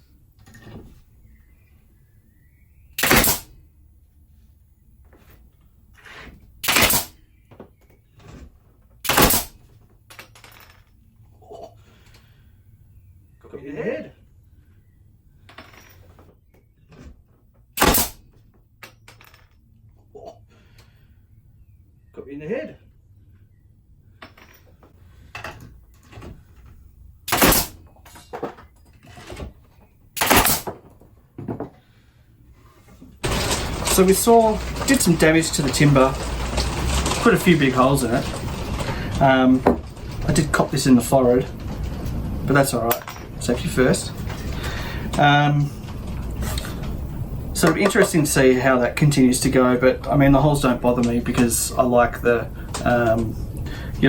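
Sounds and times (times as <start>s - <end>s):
pneumatic denailer blasts: 3.0s - 3.6s, 6.1s - 7.2s, 9.0s - 9.6s, 17.8s - 18.2s, 27.2s - 27.8s, 30.2s - 30.7s
knocks and clatter of timber: 24.2s - 31.9s, 32.9s - 53.8s.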